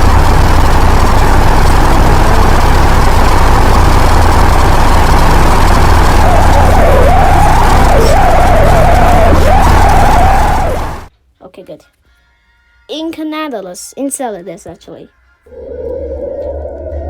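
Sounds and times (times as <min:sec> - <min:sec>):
static-like rumble: 0:00.0 - 0:11.1, 0:15.5 - 0:17.0
steady deep hum: 0:00.0 - 0:11.1, 0:15.5 - 0:17.0
wavering tone: 0:04.4 - 0:11.1, 0:15.5 - 0:17.0.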